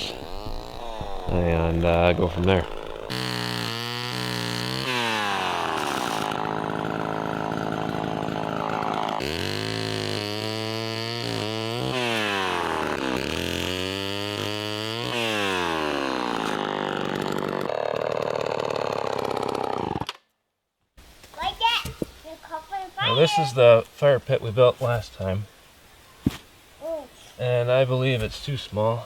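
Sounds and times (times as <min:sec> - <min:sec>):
chainsaw cutting wood: 0:00.0 - 0:20.3.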